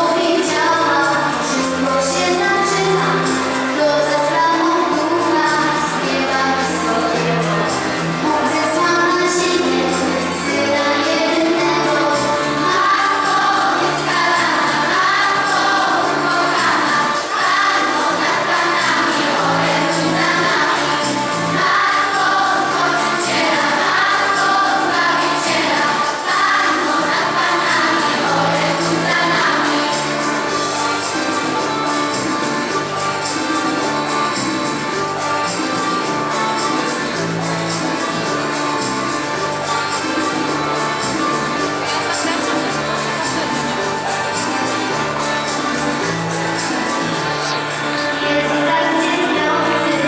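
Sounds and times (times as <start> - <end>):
women singing a carol: 0.0 - 31.1
instrumental accompaniment with bass: 0.0 - 50.0.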